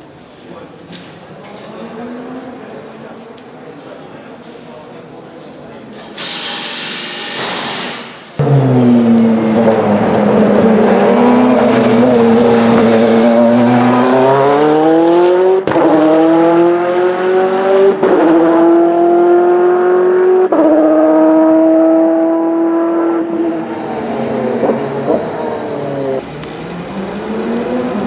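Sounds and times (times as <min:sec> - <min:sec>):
race car engine accelerating: 0:08.4 - 0:28.0.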